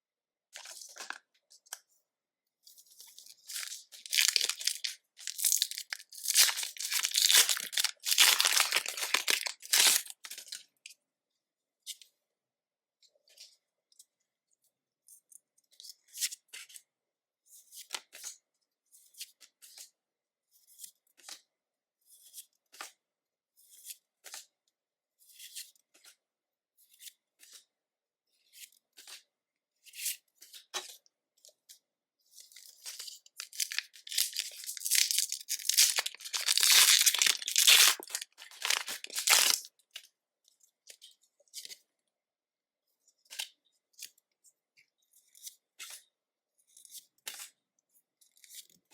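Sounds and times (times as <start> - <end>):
foil wrapper crackling and tearing: 3.5 - 10.6, 33.4 - 39.7
trading cards rustling: 3.6 - 10.6, 33.4 - 39.7.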